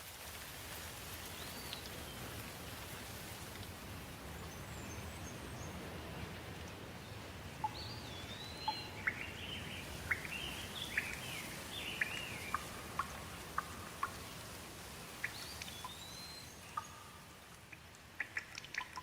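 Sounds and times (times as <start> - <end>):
steady rain: 0.0 - 19.0
bird singing whistled notes: 7.7 - 12.8, 15.2 - 17.2.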